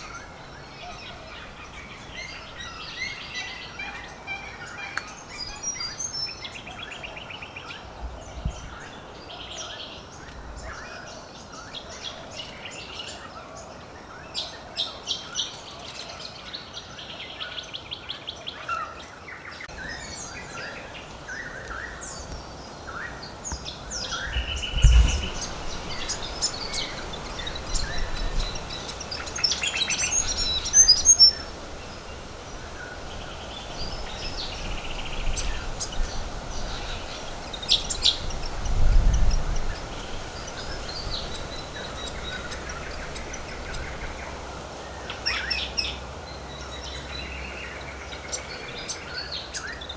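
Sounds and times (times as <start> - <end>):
wild birds calling and chirping: 0.0 - 49.9
low thump: 24.3 - 26.2.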